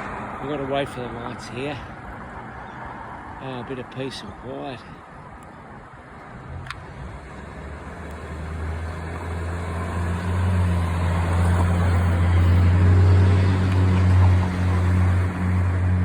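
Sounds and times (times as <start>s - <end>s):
vehicle engine humming: 5.0s - 16.0s.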